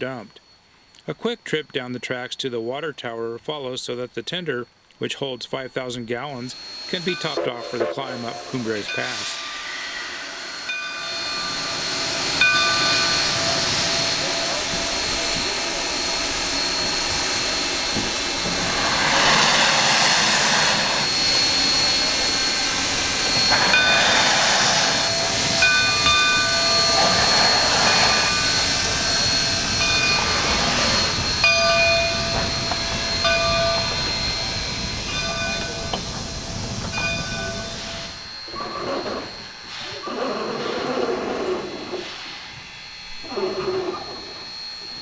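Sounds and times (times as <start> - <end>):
steam locomotive hissing: 5.5 - 45.0
exhaust rushes: 6.5 - 38.3.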